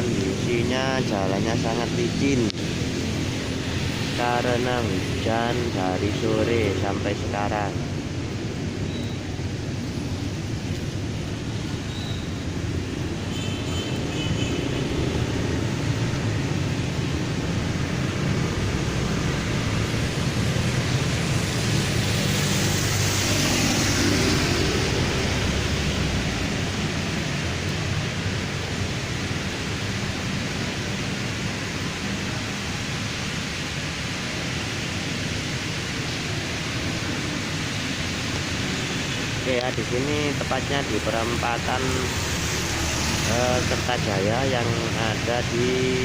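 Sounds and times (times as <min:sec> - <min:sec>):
rain hiss: 0:00.0 - 0:46.0
wet tyres on road: 0:00.0 - 0:46.0
vehicle passing with tyre spray: 0:11.5 - 0:39.4, 0:41.8 - 0:43.9.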